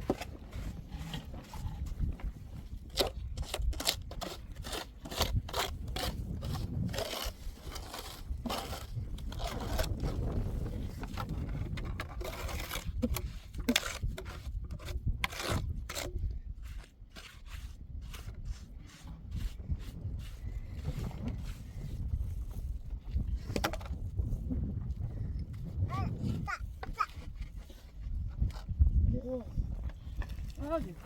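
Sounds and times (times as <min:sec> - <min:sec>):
irregular scraping: 0:02.8 - 0:23.9.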